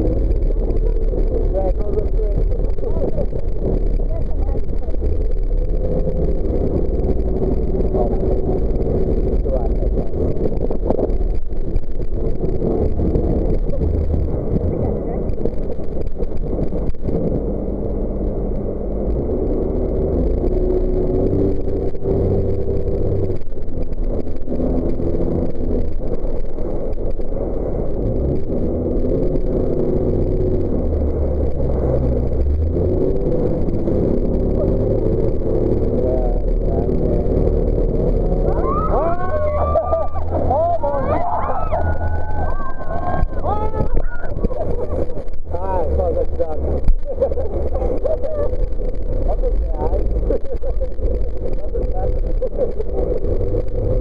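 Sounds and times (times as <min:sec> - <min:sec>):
jet boat engine running: 0:00.0 - 0:54.0.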